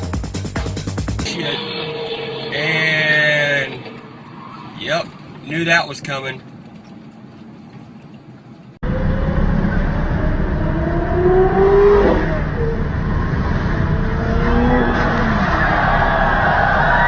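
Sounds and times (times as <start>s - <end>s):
car engine revving: 1.2s - 5.8s, 8.8s - 17.0s.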